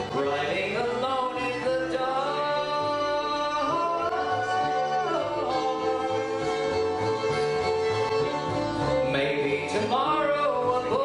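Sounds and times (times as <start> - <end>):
person singing long sliding notes: 0.0 - 7.6
string band accompaniment: 0.0 - 11.0.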